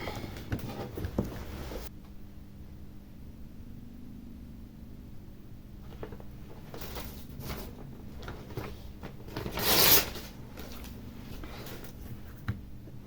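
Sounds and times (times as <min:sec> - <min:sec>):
handling rustles: 0:05.9 - 0:12.5.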